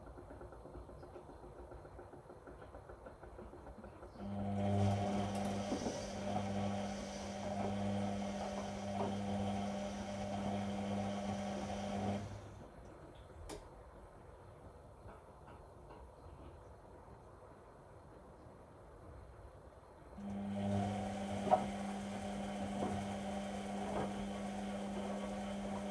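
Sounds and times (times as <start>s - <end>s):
washing machine humming: 4.2s - 12.8s, 20.2s - 25.9s.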